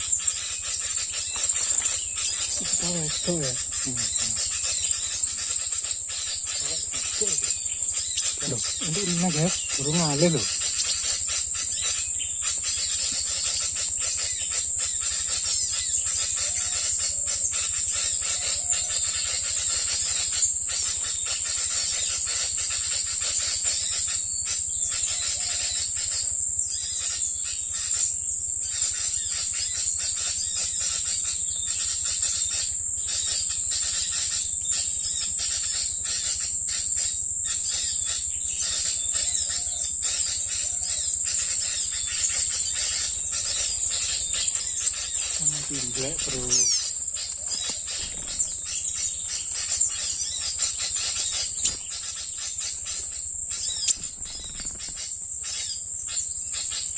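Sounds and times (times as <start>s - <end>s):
insect chirps and ticks: 0.0s - 56.9s
insect trilling: 0.0s - 56.9s.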